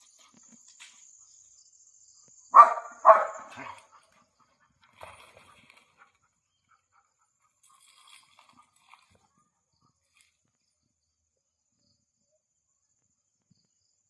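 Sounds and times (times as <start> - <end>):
dog barking: 2.5 - 4.0.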